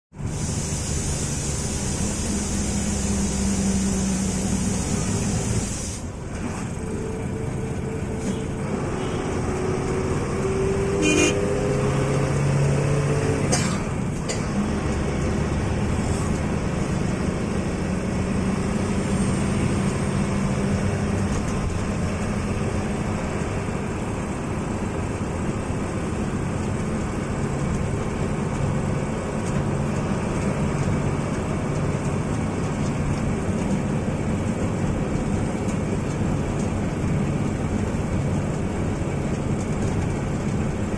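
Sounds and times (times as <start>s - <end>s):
bus engine running: 0.1s - 40.9s
horn toots: 10.9s - 11.7s.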